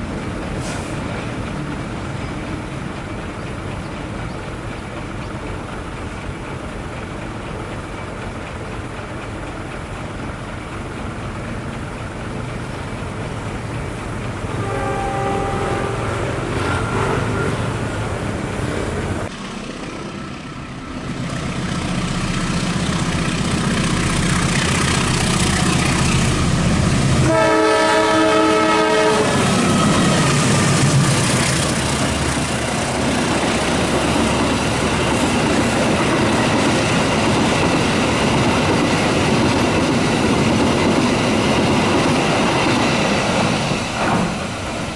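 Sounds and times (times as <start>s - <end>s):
train passing with wheel noise: 0.0s - 44.9s
train multi-tone horn: 14.4s - 18.4s, 27.2s - 30.8s.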